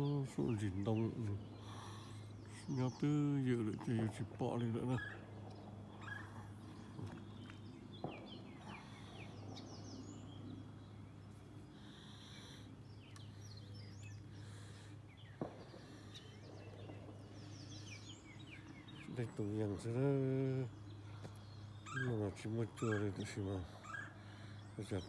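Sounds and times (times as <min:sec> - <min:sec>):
songbirds chirping: 0:00.0 - 0:25.0
steady low hum: 0:00.0 - 0:25.0.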